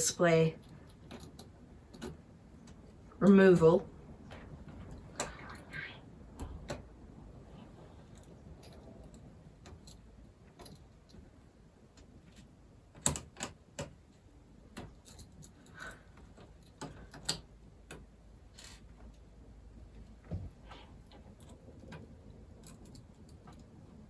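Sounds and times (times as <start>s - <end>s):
small tools and parts clinking: 14.7s - 18.8s.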